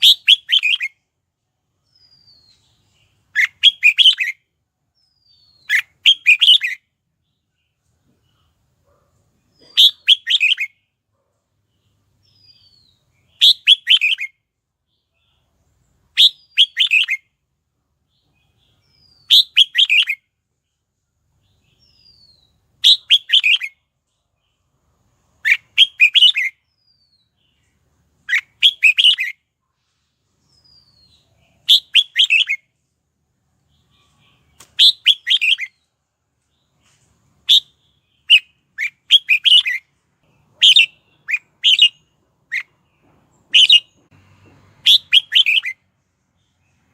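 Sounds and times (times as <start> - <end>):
bulbul chattering song: 0.0 - 1.1, 1.8 - 7.0, 9.4 - 10.9, 11.7 - 14.4, 16.1 - 17.3, 18.2 - 20.3, 21.4 - 29.4, 30.5 - 32.8, 33.7 - 35.9, 37.4 - 46.9.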